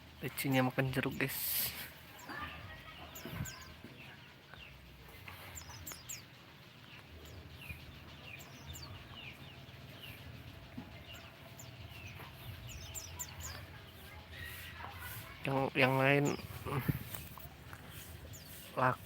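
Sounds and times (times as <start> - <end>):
birds chirping high downward chirps: 0.0 - 19.0.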